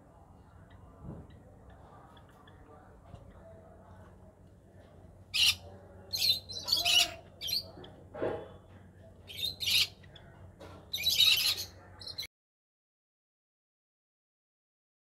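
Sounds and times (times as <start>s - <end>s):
birds squawking and chirping: 5.3s - 8.4s, 9.3s - 12.3s.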